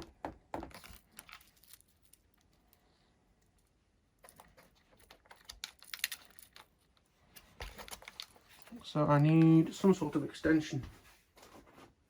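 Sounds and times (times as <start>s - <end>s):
cables and plastic connectors clicking: 4.2s - 9.9s.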